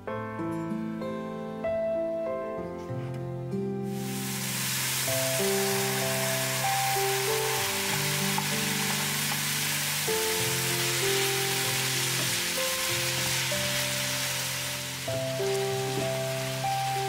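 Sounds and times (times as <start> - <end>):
music of held notes: 1.0 - 17.0
food sizzling in a pan: 3.8 - 17.0.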